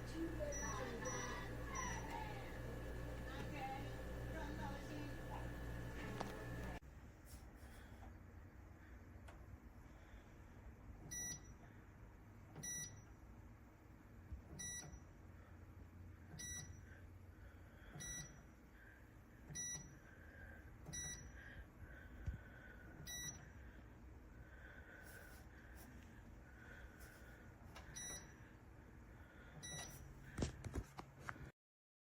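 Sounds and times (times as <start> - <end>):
short electronic beeps: 16.4 - 16.8.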